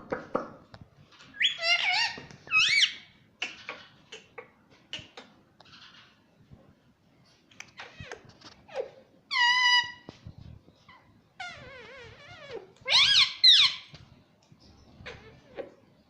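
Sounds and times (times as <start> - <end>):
parrot calling: 1.3 - 4.4, 7.8 - 10.1, 10.9 - 13.9.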